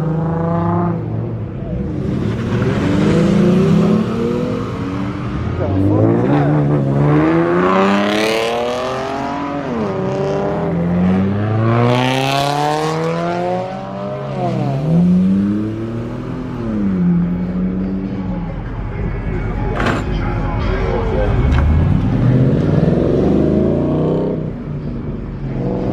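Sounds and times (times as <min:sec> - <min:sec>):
car engine accelerating hard: 0:00.0 - 0:18.4, 0:21.0 - 0:25.9.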